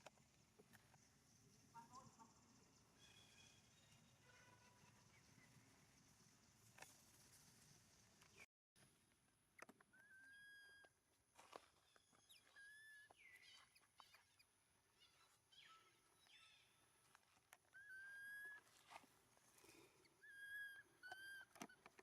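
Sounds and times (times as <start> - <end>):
high-pitched animal calls: 9.9 - 10.9, 17.7 - 18.7, 20.1 - 21.9.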